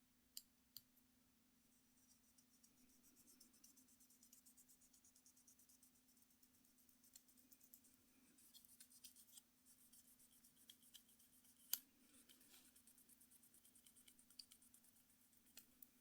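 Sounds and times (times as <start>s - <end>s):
small tools ticking and scratching: 7.1s - 15.9s.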